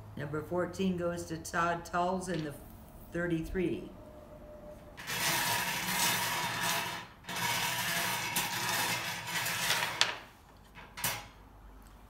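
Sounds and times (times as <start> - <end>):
draw balls rattling and scraping: 5.0 - 11.3.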